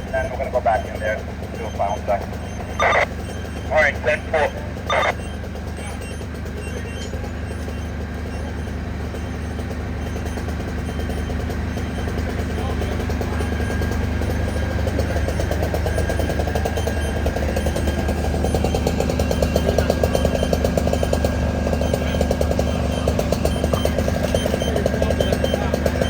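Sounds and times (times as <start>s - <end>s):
heavy diesel engine running: 0.0s - 26.0s.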